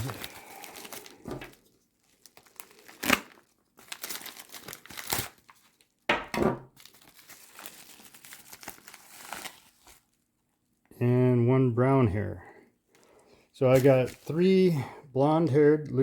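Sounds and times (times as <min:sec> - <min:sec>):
padded envelope crinkling: 0:00.0 - 0:06.1, 0:06.7 - 0:10.2, 0:13.7 - 0:14.5.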